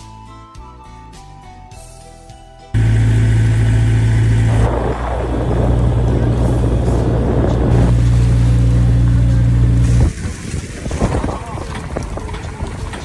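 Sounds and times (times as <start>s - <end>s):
boat engine humming: 2.8s - 13.0s
rushing water or wind: 2.8s - 13.0s.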